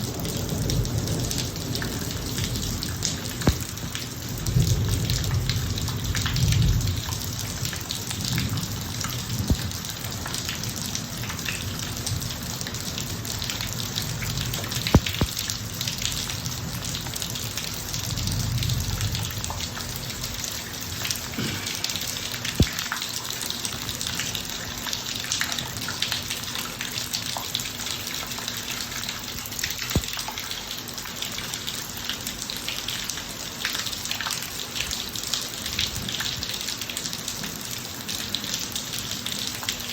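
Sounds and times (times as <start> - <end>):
rain falling on driveway: 0.0 - 39.9
sharp drip hits: 3.3 - 4.1, 9.0 - 10.0, 14.8 - 15.6, 21.3 - 23.2, 29.8 - 30.4.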